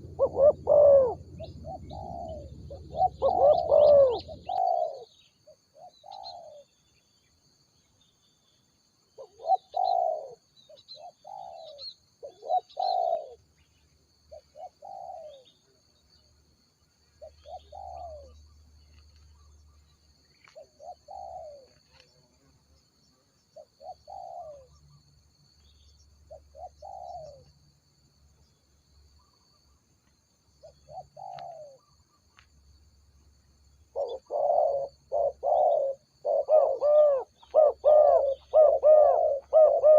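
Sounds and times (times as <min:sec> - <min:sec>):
doves cooing: 0:00.0 - 0:06.7, 0:09.2 - 0:13.4, 0:14.3 - 0:15.5, 0:17.2 - 0:18.4, 0:20.4 - 0:22.2, 0:23.6 - 0:24.8, 0:26.3 - 0:27.6, 0:30.6 - 0:31.9, 0:33.9 - 0:39.9
faint high-pitched whine: 0:00.0 - 0:39.9.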